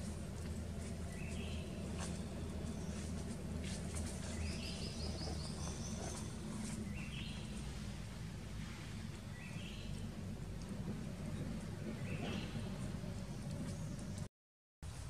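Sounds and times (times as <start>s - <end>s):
low background rumble: 0.0s - 14.3s.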